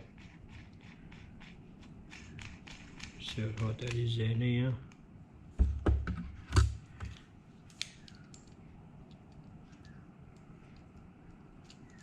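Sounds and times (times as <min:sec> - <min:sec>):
small metal parts clicking: 0:07.7 - 0:12.0.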